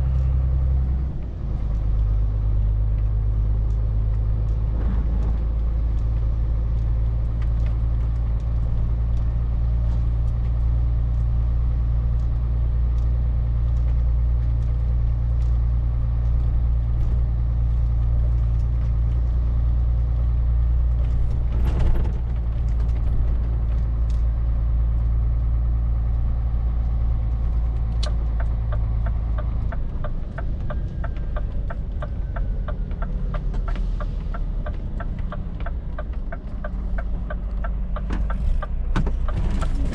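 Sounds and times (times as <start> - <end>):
diesel lorry engine droning: 0.0 - 39.9
regular ticking clicks: 26.7 - 39.9.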